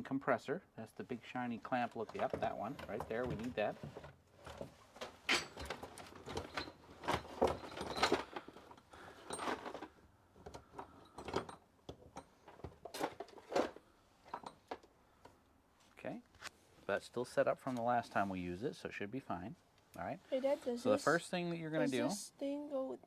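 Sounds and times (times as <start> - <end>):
metal tools clanking: 5.2 - 8.5.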